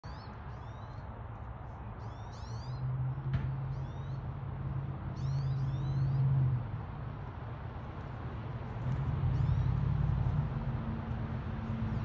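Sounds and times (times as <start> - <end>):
small birds chirping: 0.0 - 2.9, 3.6 - 4.3, 5.1 - 6.3, 8.6 - 10.4.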